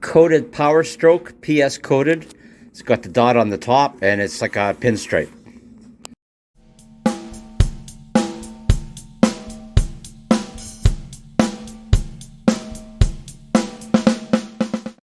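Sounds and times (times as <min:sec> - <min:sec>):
bass drum beats: 0:06.6 - 0:15.0
fast drum fill: 0:06.6 - 0:15.0
ringing snare drum hits: 0:06.6 - 0:15.0.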